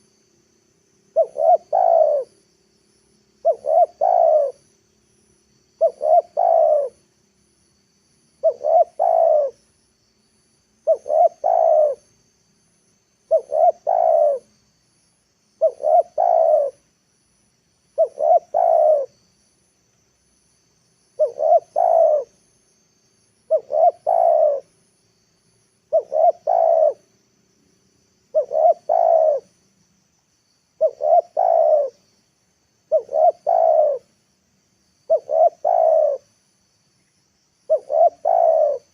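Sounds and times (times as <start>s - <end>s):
dove cooing: 1.1s - 2.3s, 3.4s - 4.7s, 5.8s - 7.0s, 8.4s - 9.6s, 10.8s - 12.0s, 13.3s - 14.5s, 15.6s - 16.8s, 18.0s - 19.2s, 21.2s - 22.4s, 23.5s - 24.7s, 25.9s - 27.1s, 28.3s - 29.6s, 30.8s - 32.0s, 32.9s - 34.1s, 35.1s - 36.3s, 37.7s - 38.9s.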